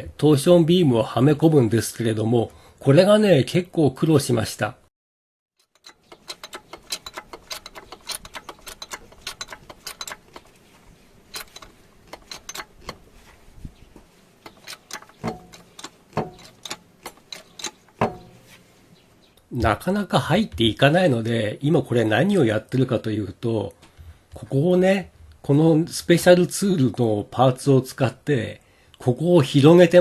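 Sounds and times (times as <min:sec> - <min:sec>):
hand tools clinking on metal: 0:05.6 - 0:10.6, 0:11.2 - 0:13.3, 0:14.4 - 0:18.6
heavy knocks on metal: 0:15.1 - 0:16.7, 0:17.9 - 0:18.5.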